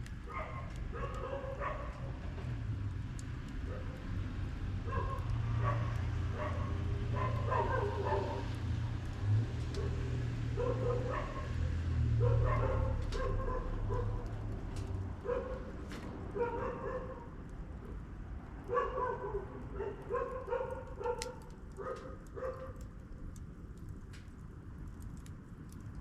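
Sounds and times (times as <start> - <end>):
wood fire crackling: 0.0 - 26.0
dog barking and yipping: 0.3 - 2.1, 4.9 - 8.6, 9.8 - 14.3, 15.2 - 15.7, 16.3 - 17.3, 18.7 - 22.8.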